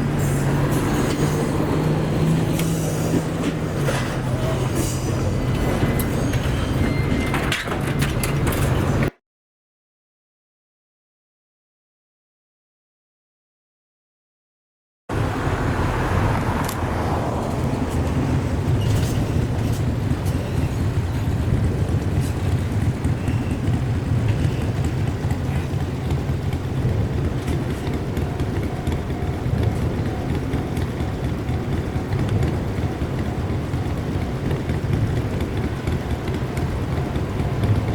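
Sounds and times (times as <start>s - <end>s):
vehicle engine rumble: 0.0s - 9.1s, 15.1s - 37.9s.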